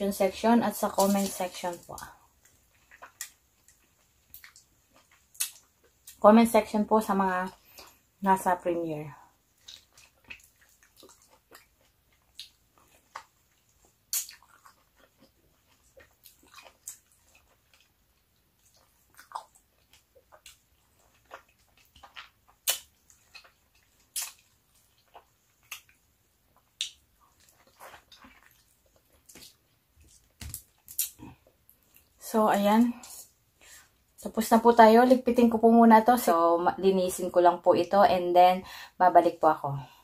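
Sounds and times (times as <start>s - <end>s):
wet chewing and mouth smacks: 1.0s - 6.2s, 9.5s - 32.2s.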